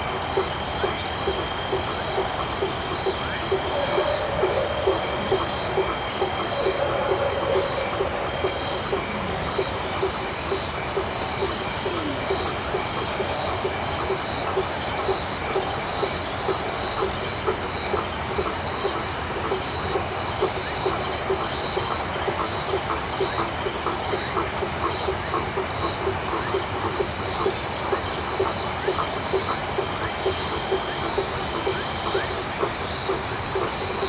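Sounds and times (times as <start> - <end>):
crickets trilling: 0.0 - 34.0
hiss of insect noise: 0.0 - 34.0
frog short low call: 3.1 - 12.8.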